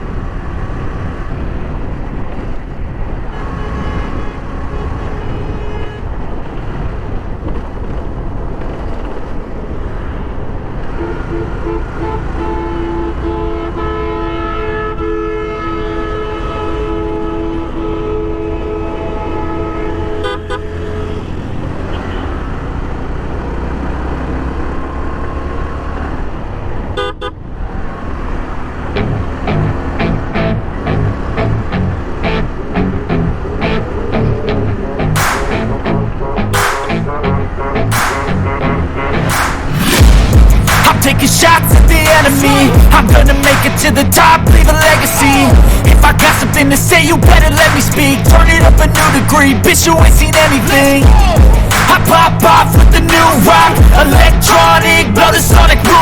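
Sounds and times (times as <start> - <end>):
motorcycle engine and wind rumble: 0.0 - 13.1, 18.6 - 36.5
vehicle horns honking: 3.1 - 7.2, 10.9 - 22.6, 27.0 - 27.5, 35.2 - 46.5
long two-tone horn blast: 3.3 - 6.9, 10.9 - 22.4, 27.0 - 27.4, 35.7 - 42.8.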